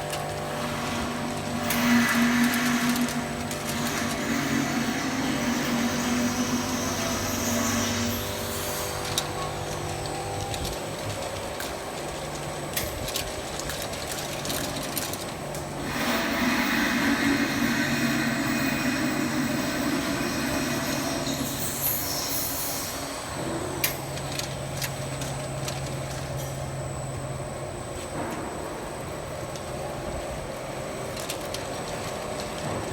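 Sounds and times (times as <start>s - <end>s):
machine humming: 0.0s - 32.9s
machine hissing: 0.5s - 11.5s, 15.8s - 26.9s.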